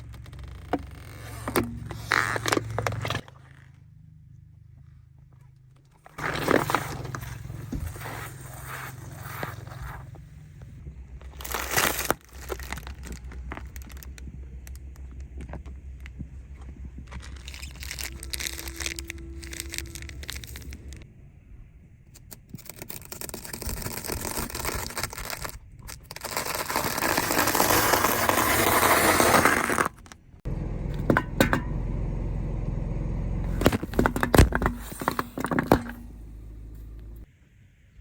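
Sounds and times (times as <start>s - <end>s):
objects crushed under car tyres: 6.0s - 10.2s, 11.2s - 21.0s, 22.6s - 31.7s, 33.5s - 37.2s.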